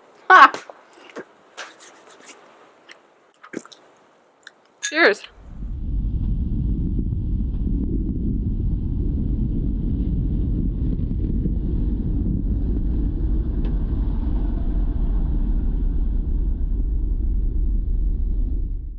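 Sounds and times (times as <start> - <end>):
wind buffeting microphone: 5.4 - 18.9.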